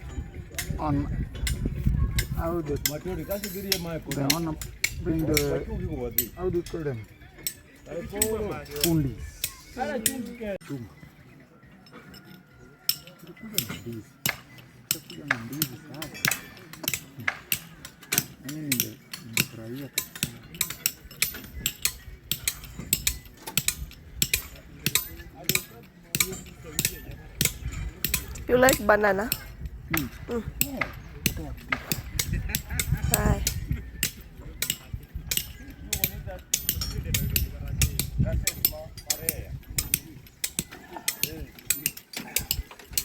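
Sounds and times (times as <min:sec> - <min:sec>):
metallic clinks and knocks: 0:11.6 - 0:43.0.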